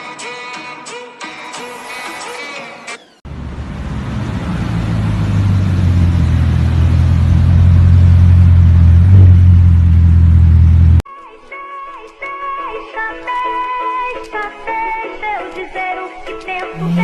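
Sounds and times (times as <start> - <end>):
sports car engine rumbling: 3.2 - 11.0, 16.7 - 17.0.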